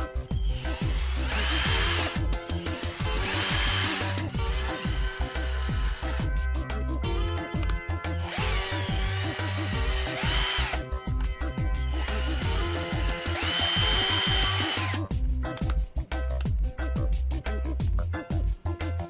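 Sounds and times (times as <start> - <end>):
background music with steady beat: 0.0 - 19.0
cordless drill motor whining: 0.3 - 6.2, 8.2 - 10.8, 11.8 - 15.0.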